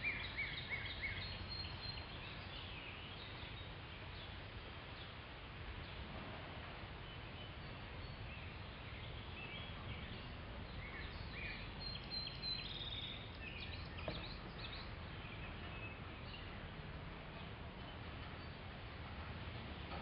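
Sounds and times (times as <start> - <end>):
low outdoor rumble: 0.0 - 20.0
birds chirping: 7.0 - 18.8.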